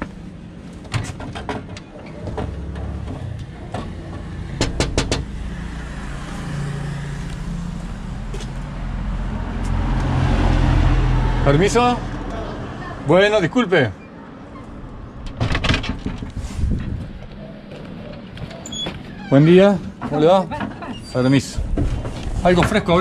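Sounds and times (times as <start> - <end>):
sharp clicks or knocks: 3.8 - 5.3.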